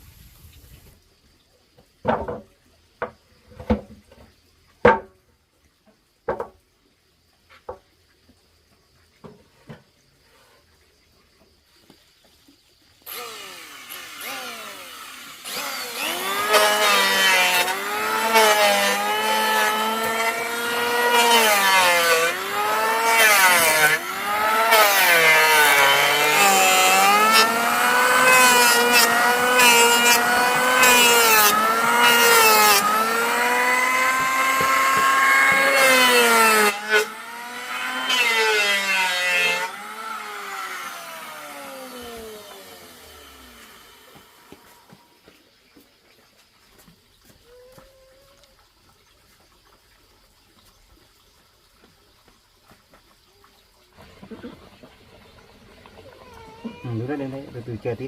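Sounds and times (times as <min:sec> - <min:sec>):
power saw cutting wood: 0:13.0 - 0:45.0.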